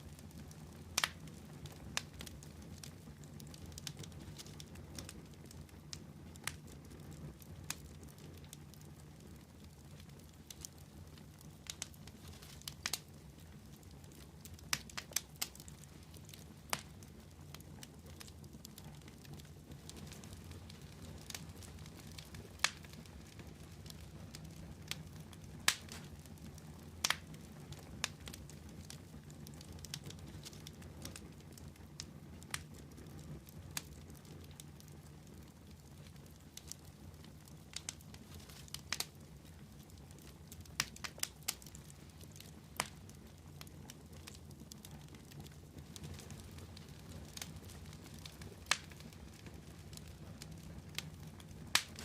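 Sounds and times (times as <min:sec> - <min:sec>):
wood fire crackling: 0:00.0 - 0:52.0.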